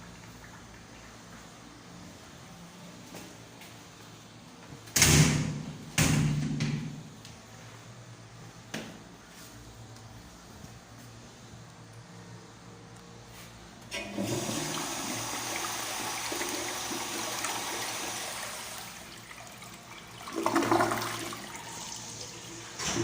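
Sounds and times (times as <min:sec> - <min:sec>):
toilet flush water rushing: 0:13.9 - 0:23.0.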